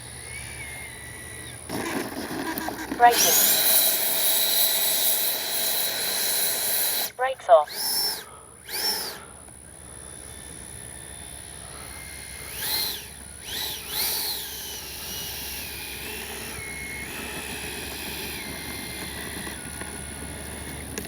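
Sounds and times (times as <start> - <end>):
electric ducted fan whining: 0.0 - 21.0.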